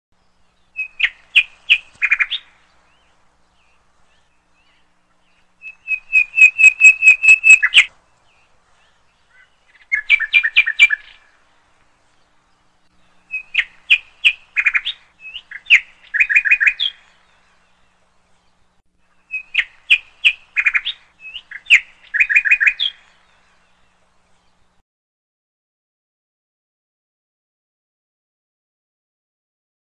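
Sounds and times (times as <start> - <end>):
small bird chirping: 0.2 - 11.4, 12.1 - 24.7.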